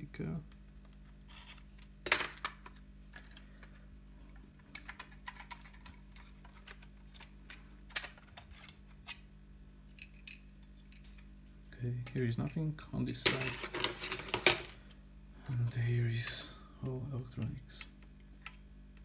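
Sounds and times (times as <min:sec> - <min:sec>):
plastic parts clicking and tapping: 0:04.6 - 0:08.8.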